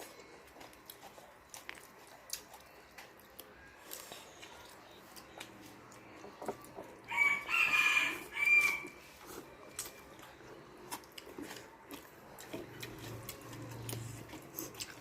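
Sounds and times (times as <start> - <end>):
faint eating clicks and smacks: 0.0 - 15.0
rooster crowing: 7.0 - 9.0.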